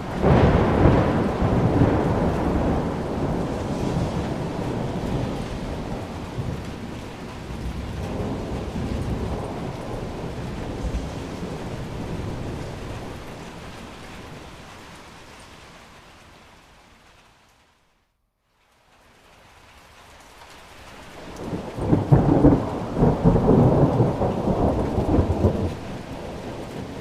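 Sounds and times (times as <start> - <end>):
thunder rumbling: 0.0 - 15.2, 21.2 - 27.0
steady rain: 0.0 - 27.0.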